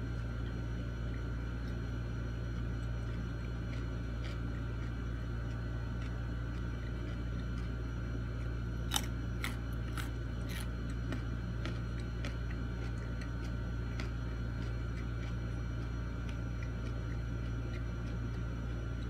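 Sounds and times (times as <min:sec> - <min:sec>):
person chewing crunchy food: 0:00.0 - 0:19.0
steady low hum: 0:00.0 - 0:19.0.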